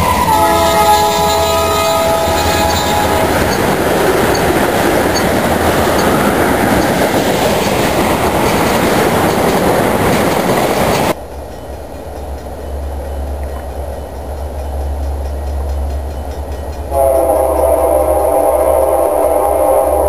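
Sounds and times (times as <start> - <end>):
locomotive horn: 0.0 - 4.4, 16.9 - 20.0
train cars rolling on rails: 0.0 - 20.0.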